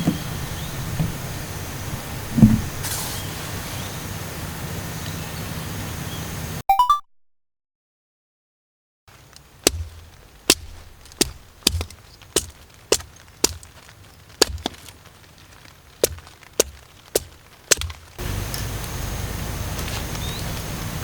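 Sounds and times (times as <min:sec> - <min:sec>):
chopping strikes with thuds: 0:09.6 - 0:15.0, 0:16.0 - 0:18.2.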